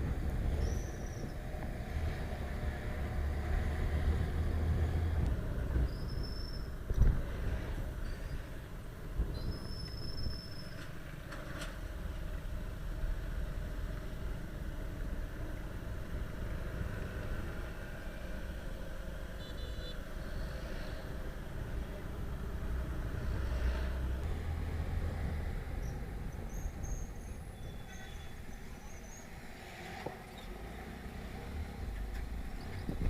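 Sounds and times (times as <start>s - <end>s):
wind noise: 32.5s - 33.0s.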